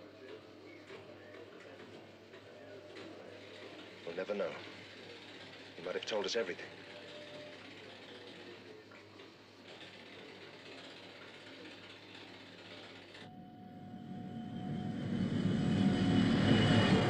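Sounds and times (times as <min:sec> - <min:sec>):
machine hum and hiss: 0:10.8 - 0:17.0
car engine approaching: 0:13.3 - 0:17.0.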